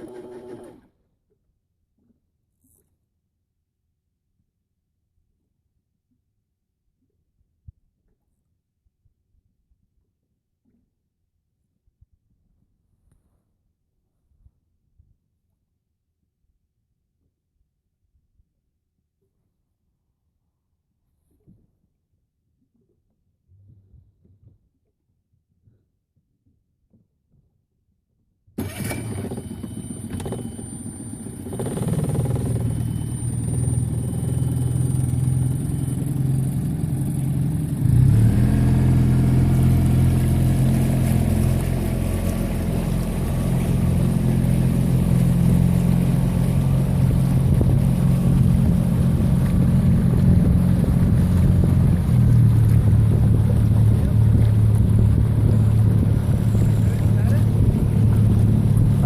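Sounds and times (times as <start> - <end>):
motorboat engine droning: 0.0 - 1.2, 28.6 - 59.0
water and wind noise: 28.6 - 59.0.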